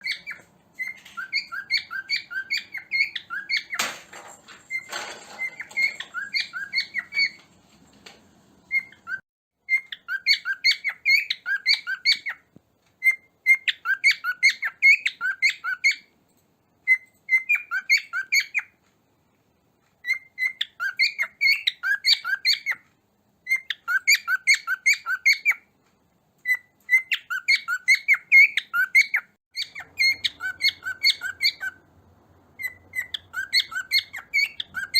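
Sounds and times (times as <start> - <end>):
cockatiel chirping: 0.0 - 4.0, 4.7 - 7.5, 8.7 - 16.2, 16.8 - 18.8, 20.0 - 22.8, 23.4 - 25.7, 26.4 - 31.9, 32.6 - 34.9
rustling: 3.7 - 9.2.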